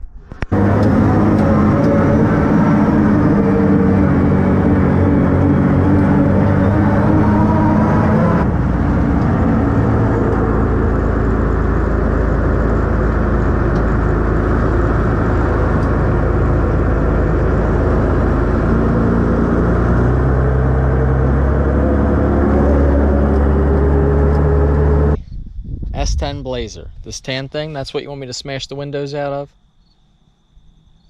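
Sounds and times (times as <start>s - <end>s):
truck engine running: 0.4s - 25.2s.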